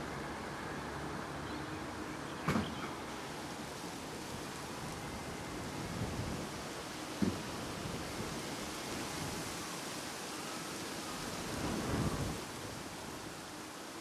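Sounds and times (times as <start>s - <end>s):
wind buffeting microphone: 11.3s - 13.2s.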